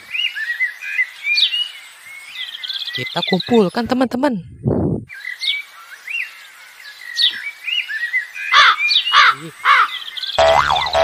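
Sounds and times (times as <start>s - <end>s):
birds chirping: 0.0s - 3.8s, 5.1s - 11.0s
loud sweeping bird calls: 5.1s - 11.0s.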